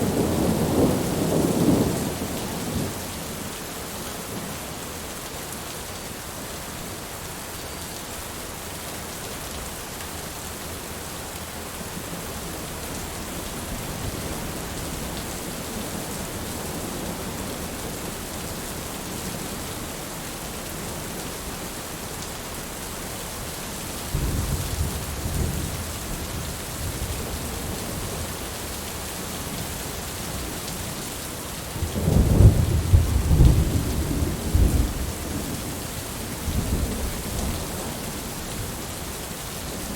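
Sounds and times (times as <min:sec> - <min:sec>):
steady rain falling: 0:00.0 - 0:39.9
thunder rumbling: 0:31.8 - 0:35.7.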